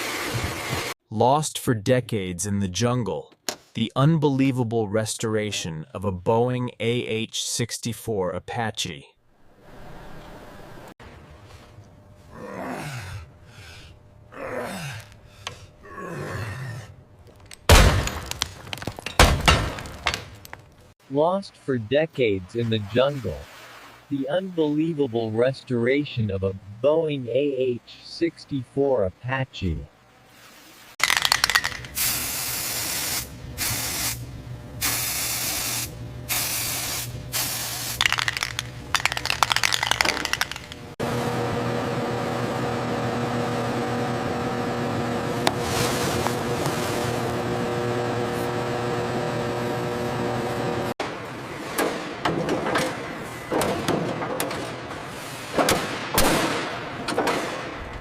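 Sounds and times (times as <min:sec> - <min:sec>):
steady low hum: 0:11.0 - 0:17.8
pressurised spray hissing: 0:31.8 - 0:34.2, 0:34.8 - 0:38.0
fast crackling: 0:38.0 - 0:41.0.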